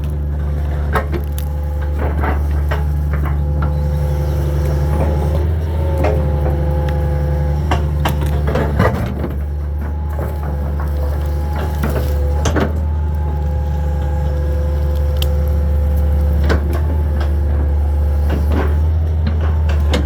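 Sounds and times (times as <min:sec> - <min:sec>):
knocks and cracks of debris: 0:00.0 - 0:03.9
excavator engine drone: 0:00.0 - 0:20.0.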